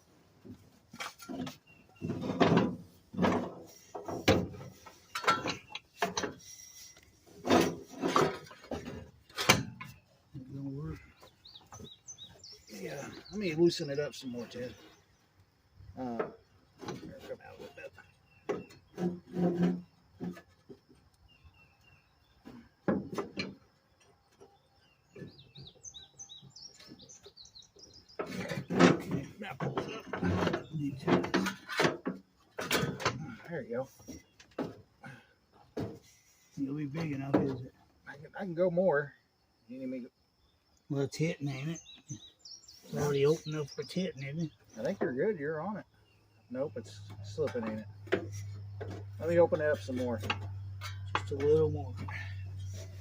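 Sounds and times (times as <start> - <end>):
small birds chirping: 0.0 - 53.0
metal tools knocking and scraping: 0.8 - 10.0, 16.2 - 20.9, 28.1 - 37.6, 46.8 - 53.0
hand tools knocking and clinking: 5.1 - 6.4, 50.2 - 52.3.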